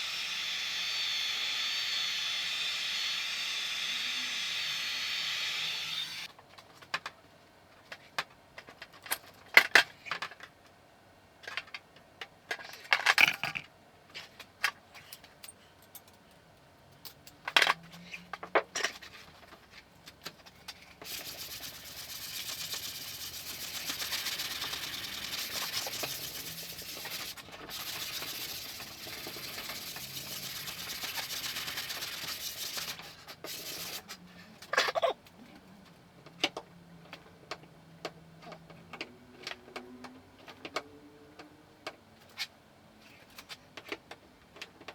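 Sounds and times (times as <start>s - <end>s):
rubbing on metal panel: 21.1s - 34.1s.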